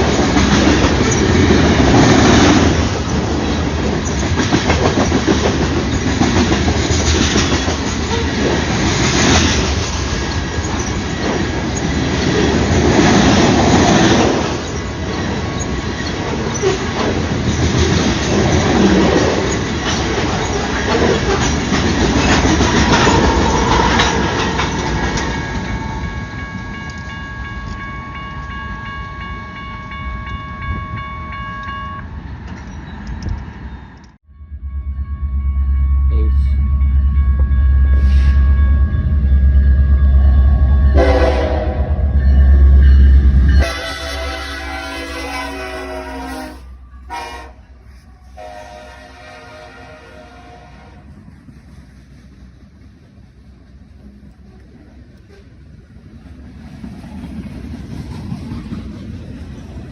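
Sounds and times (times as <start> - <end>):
train wheels clattering on rails: 0.0 - 28.6, 51.0 - 59.9
high ringing tone: 24.6 - 33.0, 34.3 - 44.7.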